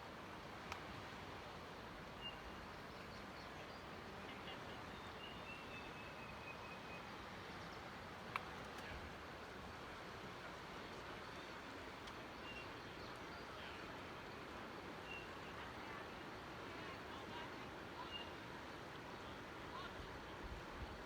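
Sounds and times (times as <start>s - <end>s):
rushing outdoor background noise: 0.0s - 21.0s.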